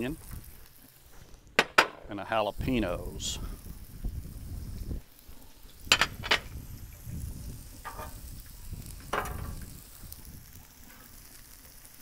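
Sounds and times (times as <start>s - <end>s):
vegetables sizzling in oil: 0.0s - 1.5s, 2.6s - 12.0s
spatula scraping griddle: 7.8s - 8.4s.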